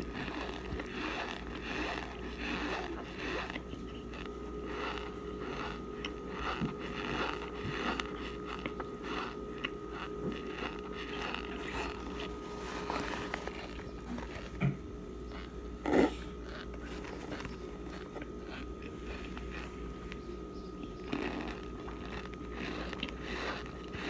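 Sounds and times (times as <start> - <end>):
crunchy chewing: 0.0 - 24.0.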